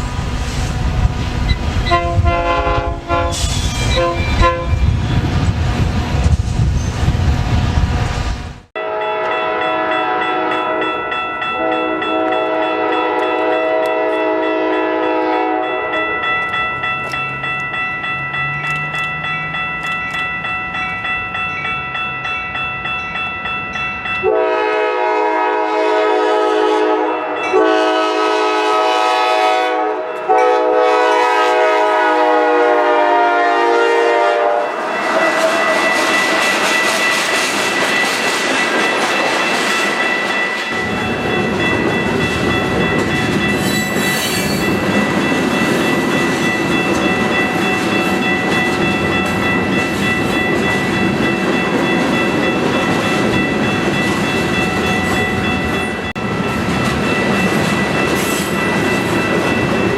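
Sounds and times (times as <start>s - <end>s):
locomotive engine and rail noise: 0.0s - 59.9s
train horn blasts: 1.8s - 4.8s, 8.8s - 10.9s, 11.6s - 16.0s, 24.2s - 35.8s.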